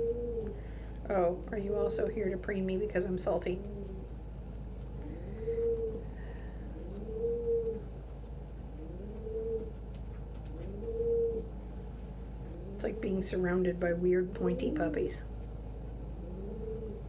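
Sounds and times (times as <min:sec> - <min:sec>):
pigeon cooing: 0:00.0 - 0:04.2, 0:05.0 - 0:15.5, 0:16.1 - 0:17.0
faint high bird chirps: 0:05.4 - 0:06.5, 0:10.6 - 0:11.8.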